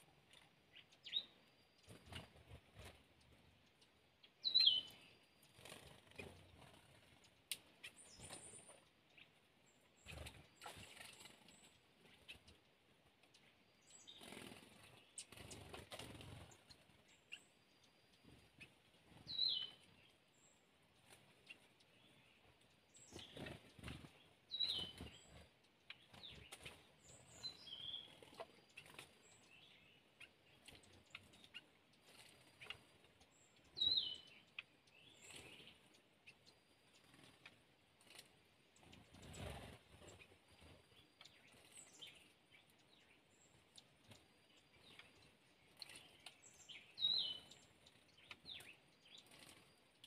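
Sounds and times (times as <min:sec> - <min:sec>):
wing flutters: 0:05.4 - 0:08.8, 0:14.0 - 0:17.1, 0:23.0 - 0:29.4, 0:36.9 - 0:42.2, 0:47.4 - 0:49.7
high bird calls: 0:23.0 - 0:32.8.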